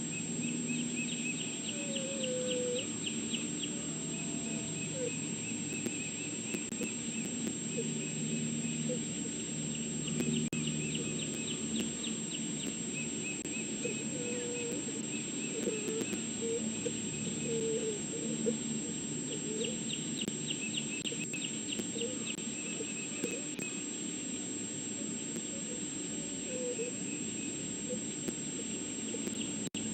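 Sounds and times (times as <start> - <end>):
steady electrical hum: 0.0 - 29.9
bird trilling: 0.1 - 9.2, 10.0 - 23.8
short low bird calls: 0.2 - 9.4, 10.0 - 23.8.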